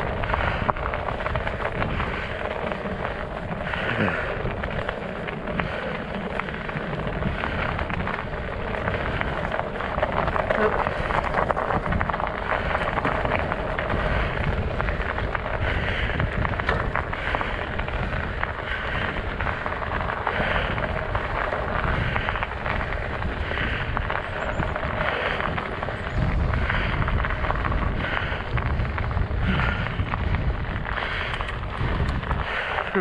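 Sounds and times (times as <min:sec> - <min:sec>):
bike tires crunching on ice: 0:00.0 - 0:33.0
wind rumbling on microphone: 0:00.0 - 0:33.0.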